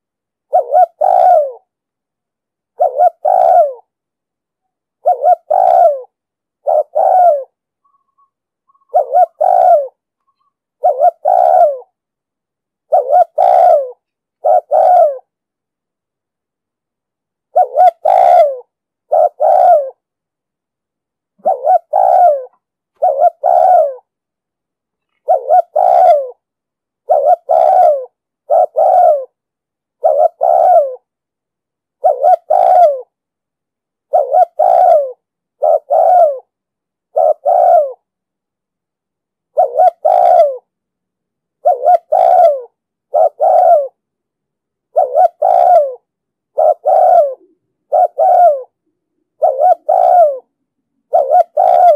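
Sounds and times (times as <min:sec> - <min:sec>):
dove cooing: 0:00.5 - 0:01.7, 0:02.7 - 0:03.9, 0:05.0 - 0:12.0, 0:12.9 - 0:15.3, 0:17.5 - 0:20.0, 0:21.4 - 0:24.1, 0:25.1 - 0:26.4, 0:27.0 - 0:29.4, 0:30.0 - 0:31.1, 0:32.0 - 0:33.2, 0:34.1 - 0:36.5, 0:37.1 - 0:38.1, 0:39.5 - 0:40.7, 0:41.6 - 0:44.0, 0:44.9 - 0:51.9.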